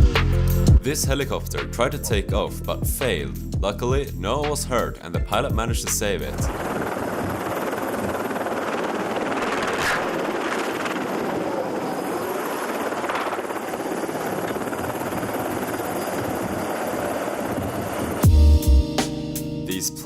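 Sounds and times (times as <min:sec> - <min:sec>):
helicopter engine and rotor: 0:06.4 - 0:18.3.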